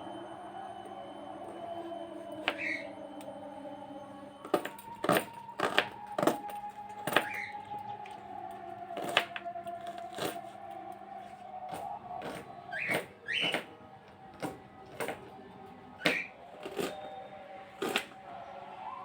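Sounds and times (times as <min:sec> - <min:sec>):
faint steady tones: 0:00.0 - 0:19.0
hard objects knocking and clinking: 0:04.4 - 0:17.1, 0:17.8 - 0:18.2.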